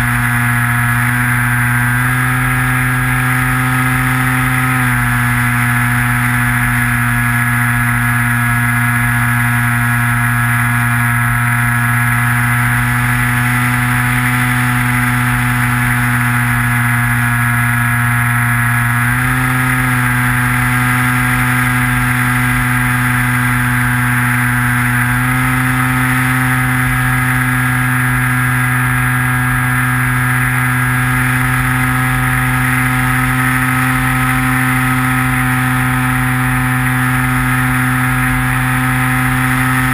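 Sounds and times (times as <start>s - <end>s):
model plane electric motor whine: 0.0s - 39.9s.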